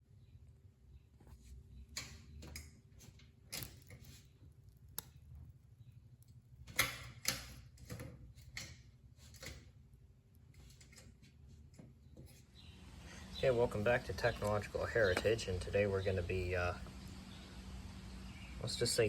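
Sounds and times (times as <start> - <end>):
faint low hum: 9.6 - 19.0.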